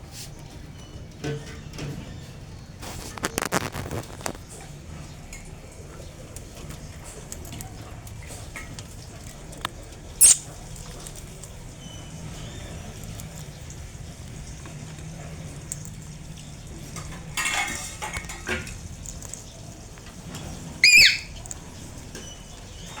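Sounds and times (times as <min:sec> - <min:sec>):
parrot squawk: 0:10.2 - 0:10.5, 0:20.8 - 0:21.4
clatter and clinks: 0:17.0 - 0:19.3.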